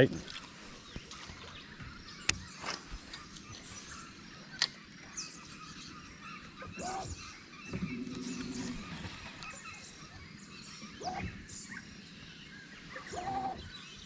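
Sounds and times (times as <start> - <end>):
birds chirping: 0.0 - 14.0
low bird call: 5.8 - 10.2, 12.8 - 14.0.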